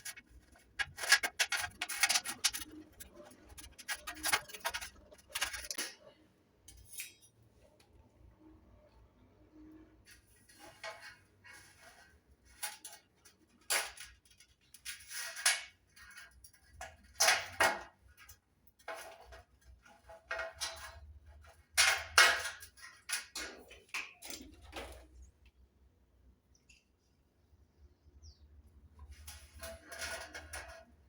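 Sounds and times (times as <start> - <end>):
metallic scrapes: 0.0 - 5.8, 29.0 - 31.0.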